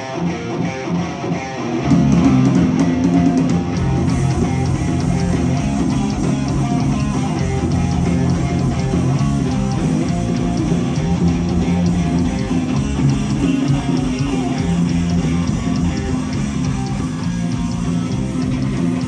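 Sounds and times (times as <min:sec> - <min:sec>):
live heavy metal band: 0:00.0 - 0:19.0.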